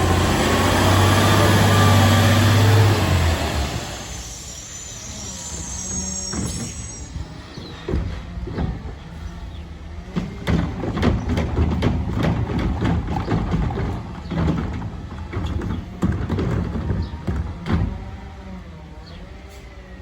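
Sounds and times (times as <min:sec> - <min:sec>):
garbage truck engine and hydraulics: 0:00.0 - 0:20.0
cart clunks and bangs: 0:06.2 - 0:18.3.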